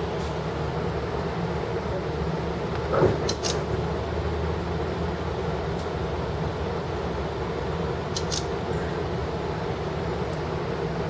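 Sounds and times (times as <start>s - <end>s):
train rumble inside car: 0.0s - 11.0s
train clunk: 2.7s - 3.7s.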